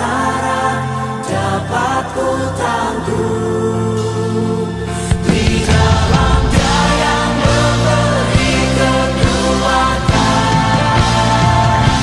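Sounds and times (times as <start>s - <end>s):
worship band playing: 0.1s - 12.0s
drum hit: 5.1s - 8.1s.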